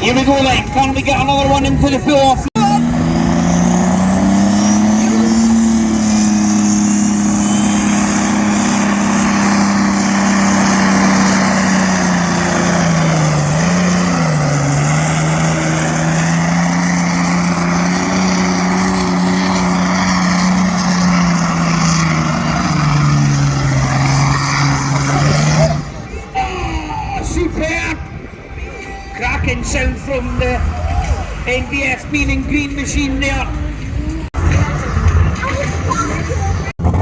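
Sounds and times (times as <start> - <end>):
tractor engine running flat out: 2.6 - 26.1.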